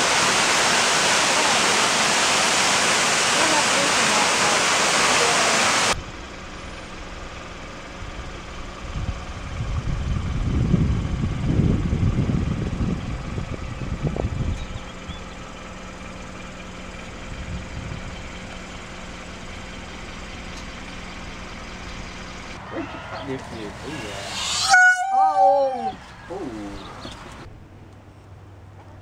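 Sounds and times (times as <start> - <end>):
wind buffeting microphone: 8.8 - 15.2.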